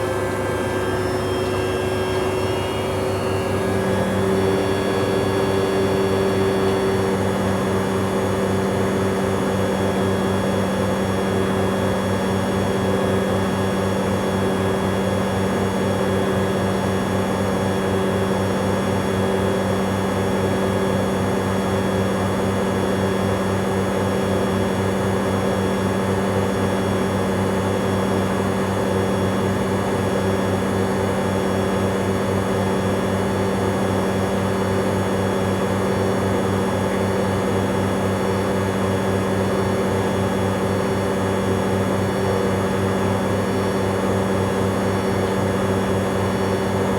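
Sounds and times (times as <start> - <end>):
washing machine spin cycle: 0.0 - 46.9.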